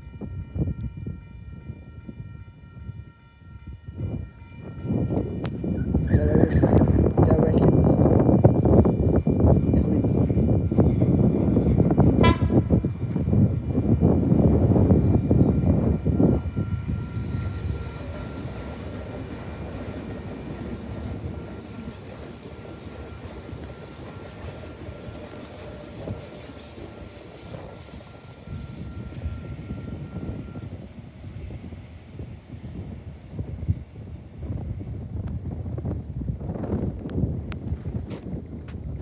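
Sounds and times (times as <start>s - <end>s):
train rumble: 0.0s - 39.0s
thin high whine: 22.0s - 30.8s.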